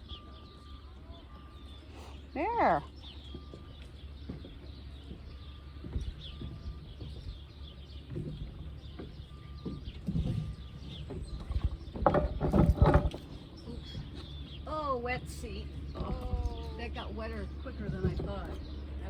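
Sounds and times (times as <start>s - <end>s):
hoofbeats on soft wet ground: 2.8s - 11.9s.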